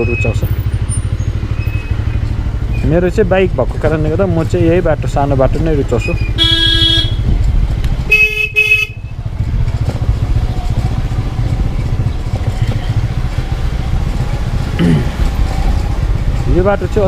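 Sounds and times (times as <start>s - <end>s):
motorcycle engine running: 0.0s - 17.0s
vehicle horn honking: 6.3s - 7.3s, 8.0s - 9.2s.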